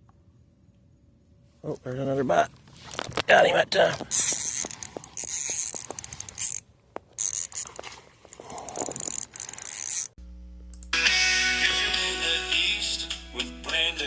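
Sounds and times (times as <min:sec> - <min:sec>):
fishing reel ratcheting and whirring: 0:04.1 - 0:07.7, 0:08.9 - 0:10.2
steady low hum: 0:10.2 - 0:13.9.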